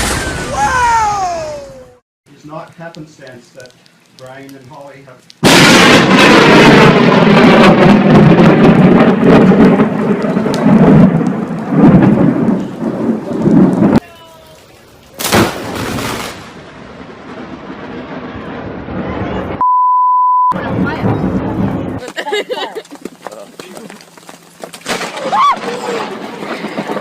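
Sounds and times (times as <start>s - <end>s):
rolling thunder: 0.0s - 1.1s, 5.4s - 14.0s, 15.2s - 19.6s, 20.6s - 22.0s, 24.9s - 27.0s
sharp thunder crack: 0.0s - 1.1s, 5.4s - 14.0s, 15.2s - 19.6s, 20.5s - 22.0s
heavy rain: 3.2s - 19.6s, 23.6s - 27.0s
steady beep tone: 19.6s - 20.6s.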